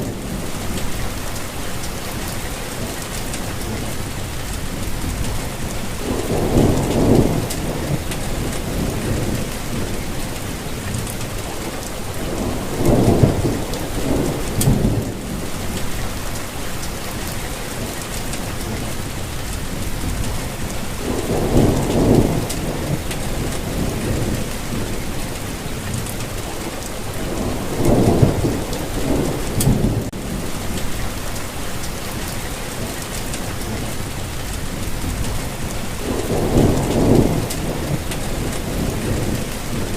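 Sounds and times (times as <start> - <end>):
low rolls of thunder: 0.0 - 1.4, 3.5 - 19.0, 19.7 - 31.4, 33.3 - 39.9
heavy rainfall hissing: 0.0 - 39.9.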